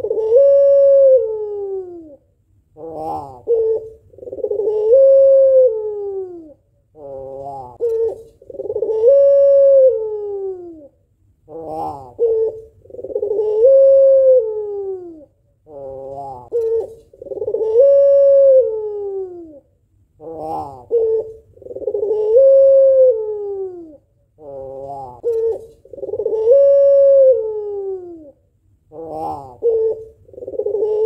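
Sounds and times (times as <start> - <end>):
dove cooing: 0.0 - 31.0.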